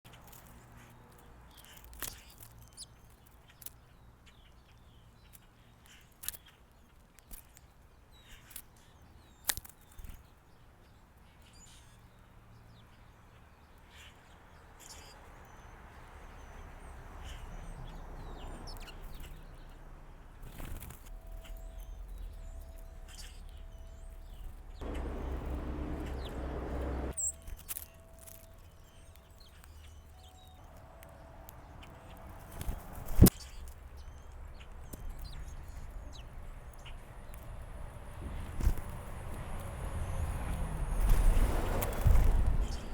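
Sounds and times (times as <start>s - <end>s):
bird chirps: 13.9s - 37.4s
low steady rumble: 21.1s - 27.1s
rushing noise: 24.8s - 27.1s.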